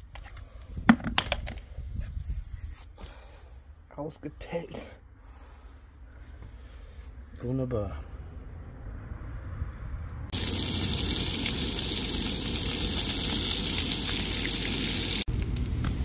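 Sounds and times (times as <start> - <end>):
fish frying in hot oil: 10.4 - 15.4.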